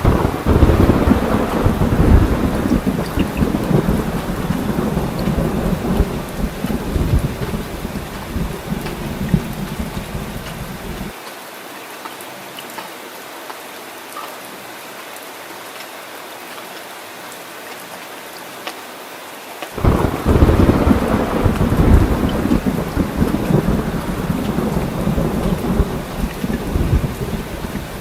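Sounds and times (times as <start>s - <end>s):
loud peal of thunder: 0.0s - 11.1s, 19.8s - 28.0s
low thunder rumble: 0.0s - 11.1s, 19.8s - 28.0s
steady rain falling: 0.0s - 28.0s.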